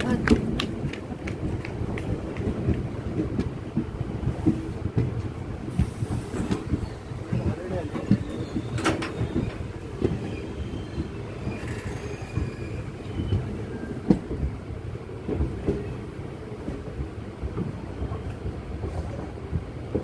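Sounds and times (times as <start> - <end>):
train running gear rumble: 0.0 - 20.0
wheel squeal: 8.0 - 14.0.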